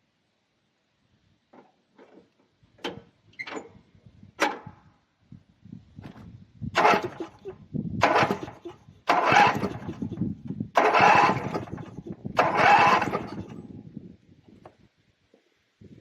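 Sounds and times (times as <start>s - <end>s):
engine electric starter cranking: 6.8s - 13.7s.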